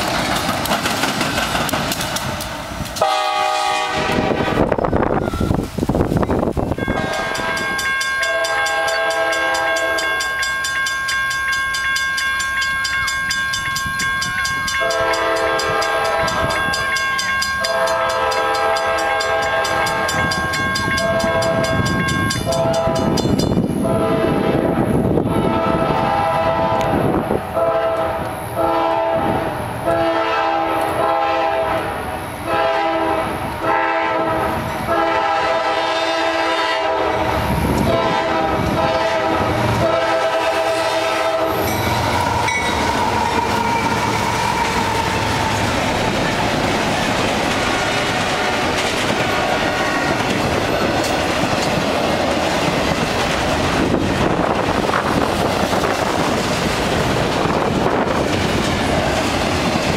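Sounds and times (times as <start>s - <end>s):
wheels clacking over rail joints: 0.0s - 3.1s, 39.8s - 59.9s
freight train rumbling past: 0.0s - 59.9s
train horn blasts: 3.0s - 5.5s, 6.7s - 10.2s, 14.8s - 17.0s, 17.6s - 45.6s, 47.6s - 50.3s.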